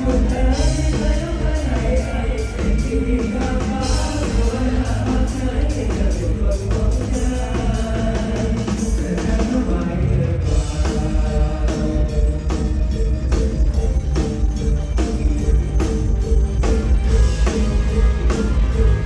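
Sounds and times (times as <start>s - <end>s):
amplified singing: 0.0s - 19.0s
drum kit beat: 0.0s - 19.0s.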